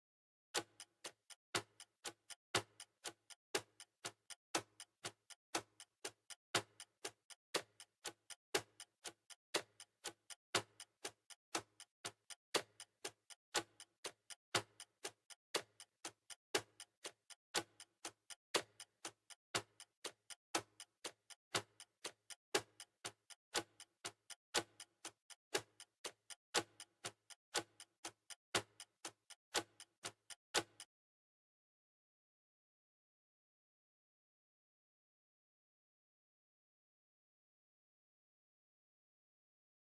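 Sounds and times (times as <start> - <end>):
steady ticking: 0.6 - 30.8.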